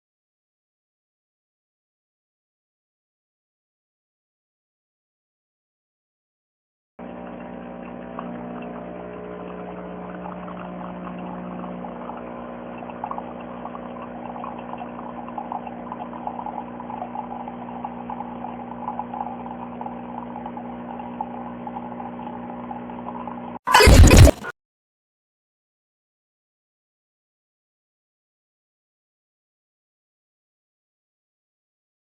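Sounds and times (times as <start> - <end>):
espresso machine pump humming: 7.0 - 23.6
liquid streaming into cup: 7.8 - 22.5.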